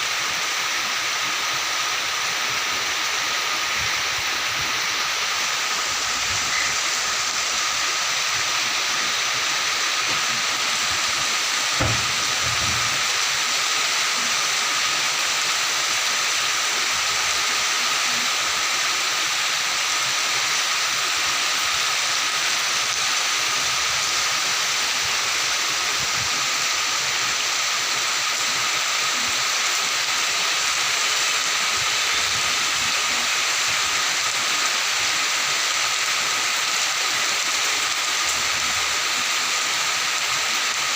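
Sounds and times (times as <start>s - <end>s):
rain falling in a forest: 0.0s - 40.9s
low knock: 11.8s - 13.1s.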